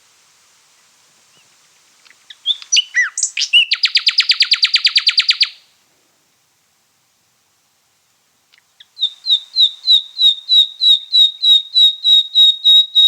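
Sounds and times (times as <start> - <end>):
nightingale song: 0.7 - 5.7, 8.4 - 13.0.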